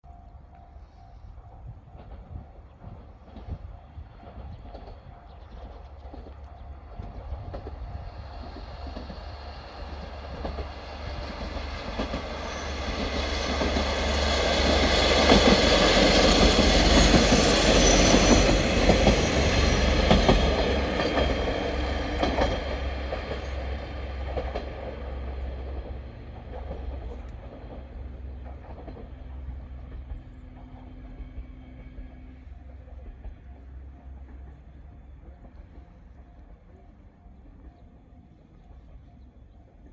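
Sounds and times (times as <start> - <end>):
diesel train engine hum: 0.0 - 39.9
wheels clacking over rail joints: 4.4 - 31.2.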